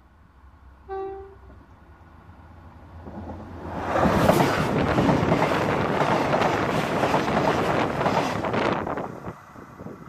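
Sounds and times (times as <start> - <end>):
train passing overhead: 0.0 - 10.0
train horn toot: 0.9 - 1.5.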